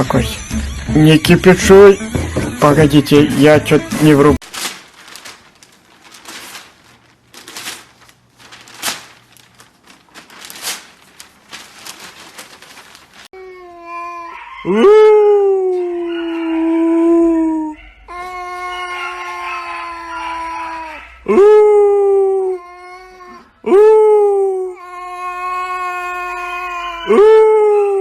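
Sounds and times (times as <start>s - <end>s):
dog howling: 14.0s - 21.4s, 24.9s - 28.0s.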